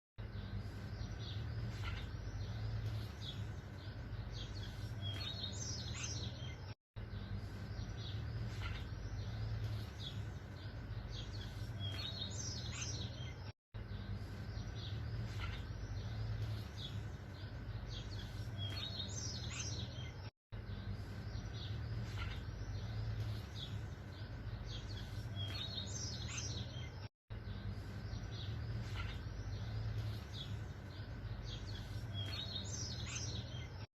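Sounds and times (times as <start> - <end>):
birds chirping: 0.2 - 33.9.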